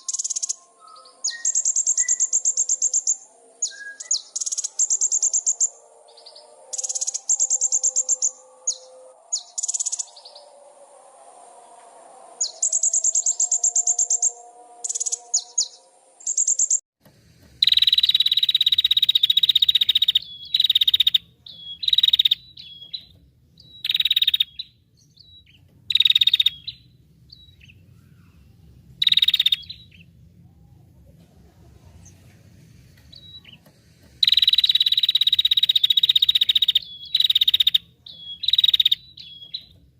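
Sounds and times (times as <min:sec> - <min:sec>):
loud buzzy bird calls: 0:00.0 - 0:11.0, 0:11.6 - 0:16.8, 0:17.4 - 0:39.9
songbird rapid high trills: 0:00.0 - 0:16.8, 0:17.6 - 0:30.1, 0:31.9 - 0:39.7
background bird chirping: 0:00.0 - 0:39.9
low hum: 0:00.0 - 0:39.9.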